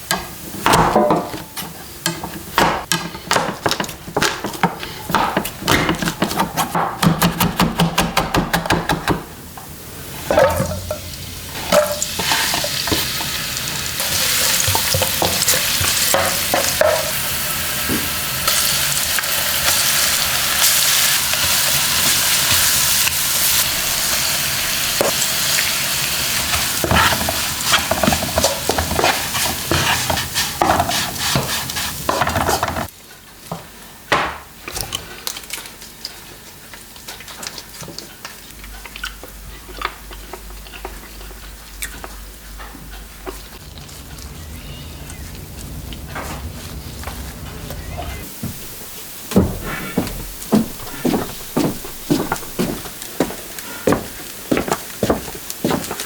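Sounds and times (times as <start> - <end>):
food sizzling in a pot: 9.8 - 32.9, 48.2 - 56.0.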